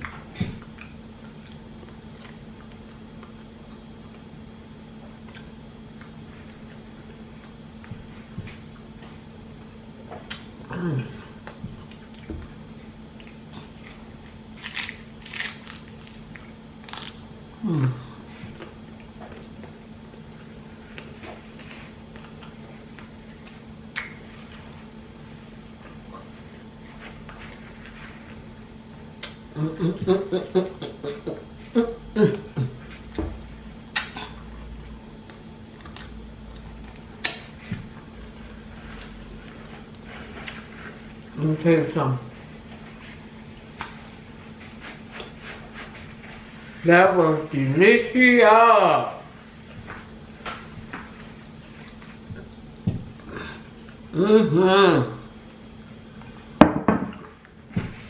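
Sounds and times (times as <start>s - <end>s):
chewing crunchy taco: 0.0s - 4.4s, 9.6s - 29.6s
steady low hum: 0.0s - 58.0s
person humming: 10.6s - 11.5s, 17.6s - 18.4s, 29.5s - 32.8s, 53.2s - 55.3s.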